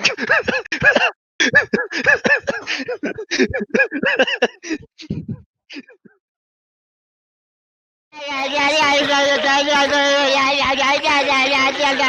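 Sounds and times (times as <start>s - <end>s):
person making pitched syllables: 5.0s - 5.4s.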